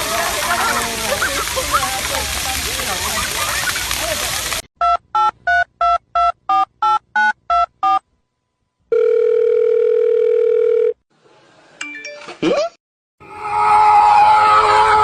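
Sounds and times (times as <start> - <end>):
steady phone tone: 8.9 - 11.0.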